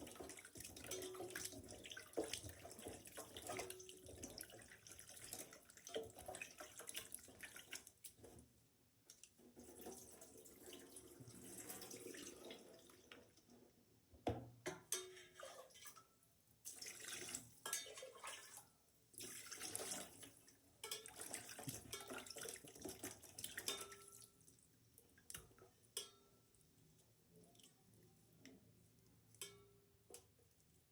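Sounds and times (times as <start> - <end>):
tap water splashing into sink: 0.0 - 8.2.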